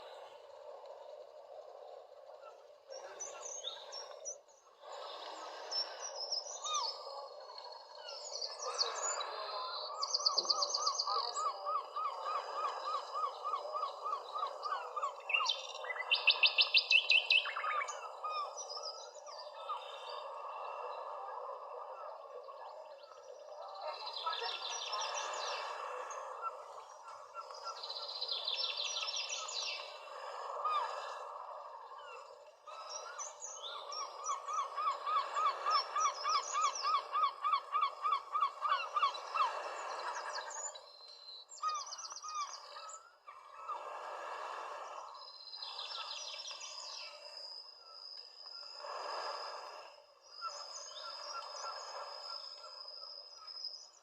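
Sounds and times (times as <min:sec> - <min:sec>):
wild birds singing and calling: 0:00.0 - 0:54.0.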